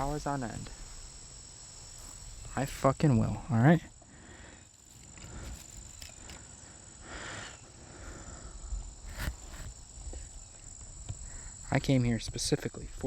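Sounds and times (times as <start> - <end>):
crickets trilling: 0.0 - 13.0
brief rustle: 4.8 - 6.5.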